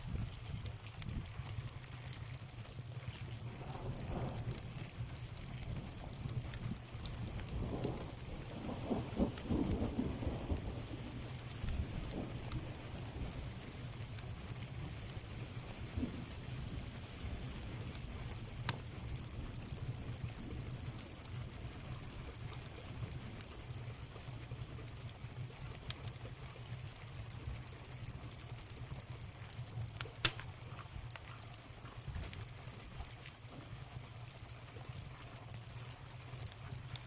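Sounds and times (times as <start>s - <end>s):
wood fire crackling: 0.0s - 37.0s
fire popping sharply: 30.0s - 31.0s.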